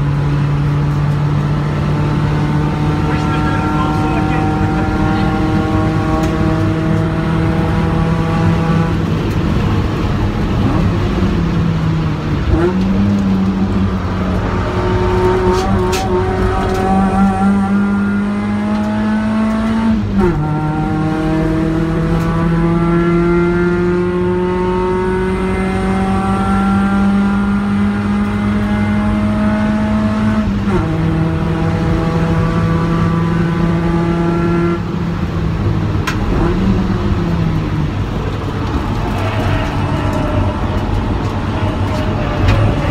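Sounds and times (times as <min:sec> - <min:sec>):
car engine revving: 0:00.0 - 0:42.9
road and wind noise: 0:00.0 - 0:42.9.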